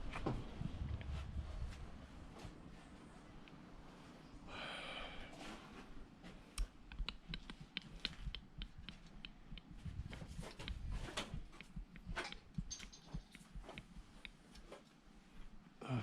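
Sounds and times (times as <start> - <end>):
clicks and taps of metal parts: 6.6 - 14.4.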